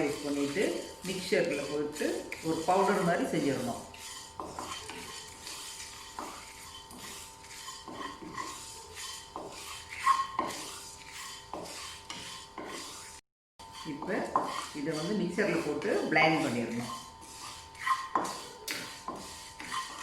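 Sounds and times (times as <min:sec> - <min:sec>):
utensil scraping a dry pan: 0:00.0 - 0:20.0.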